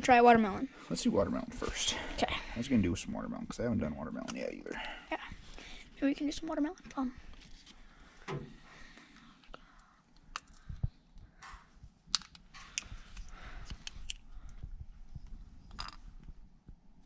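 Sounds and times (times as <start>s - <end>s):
small objects clicking and rustling: 11.4s - 14.6s, 15.2s - 16.3s.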